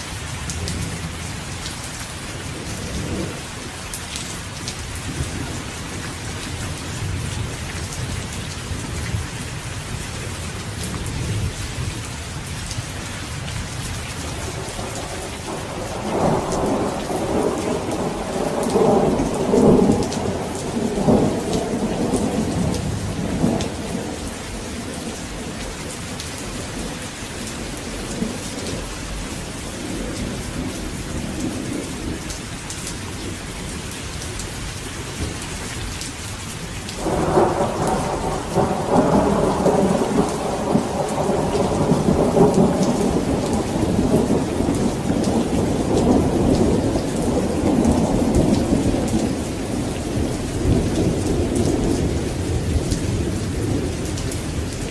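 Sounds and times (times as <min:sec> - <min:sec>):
heavy rain: 0:00.0 - 0:54.9
rolling thunder: 0:14.3 - 0:28.8, 0:37.0 - 0:54.9.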